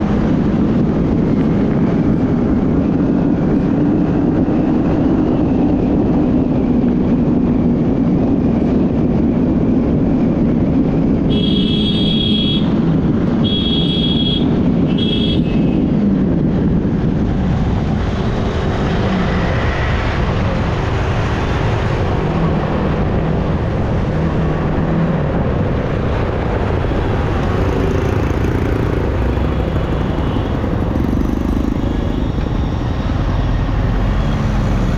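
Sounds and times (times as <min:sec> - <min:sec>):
wind rush on microphone: 0:00.0 - 0:34.9
vehicle horn beeps: 0:11.3 - 0:12.8, 0:13.4 - 0:15.8
motorcycle engine: 0:26.0 - 0:34.9.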